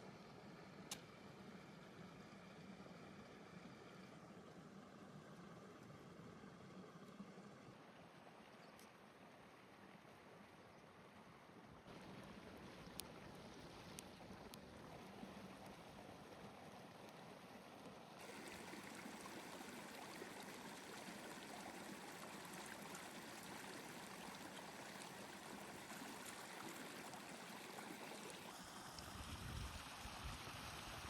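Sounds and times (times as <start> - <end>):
hiss of running water: 18.2 - 31.0.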